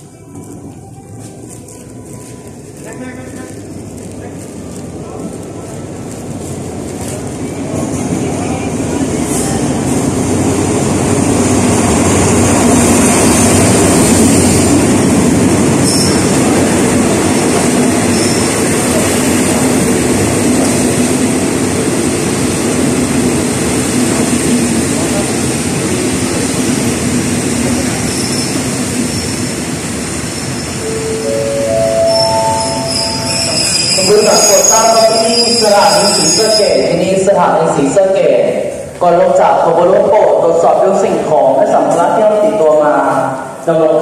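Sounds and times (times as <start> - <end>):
train wheels rumbling on rails: 0.0 - 36.9
high brake squeal: 15.8 - 16.3, 18.1 - 18.6, 28.1 - 29.4, 30.3 - 36.9.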